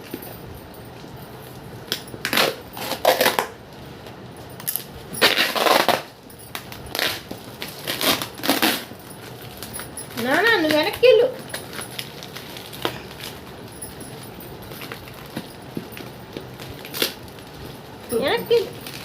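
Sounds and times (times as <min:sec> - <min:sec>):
packaging tearing and crumpling: 0:02.2 - 0:03.6, 0:04.6 - 0:10.2, 0:11.6 - 0:13.5, 0:14.8 - 0:17.8, 0:18.5 - 0:19.0.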